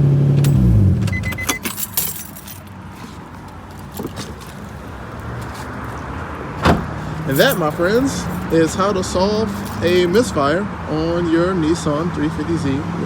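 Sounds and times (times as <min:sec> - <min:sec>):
car engine idling: 0:00.0 - 0:10.6
keys jangling and clicking: 0:00.4 - 0:04.8, 0:06.7 - 0:10.3
short beeps: 0:01.1 - 0:01.7.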